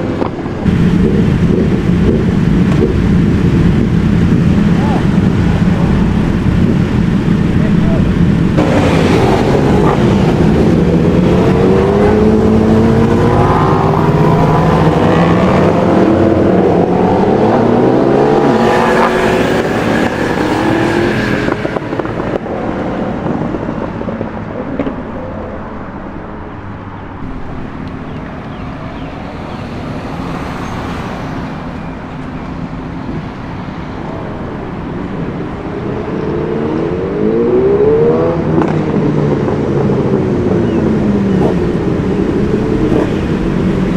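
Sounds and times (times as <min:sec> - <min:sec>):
motorbike engines revving past: 0:00.0 - 0:25.7, 0:27.1 - 0:43.9
street noise: 0:00.0 - 0:43.9.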